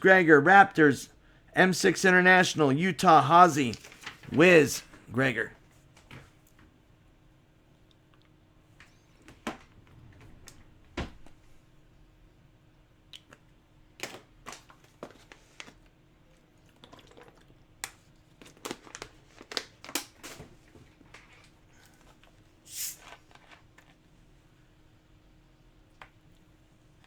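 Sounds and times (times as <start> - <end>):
plastic wrap crinkling and tearing: 3.7 - 4.3.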